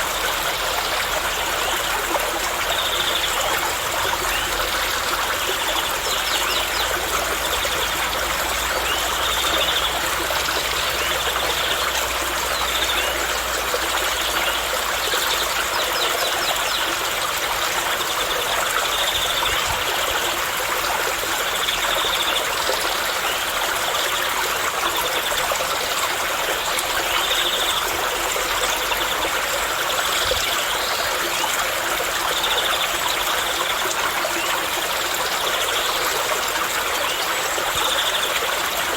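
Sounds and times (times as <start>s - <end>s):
running water: 0.0s - 38.9s.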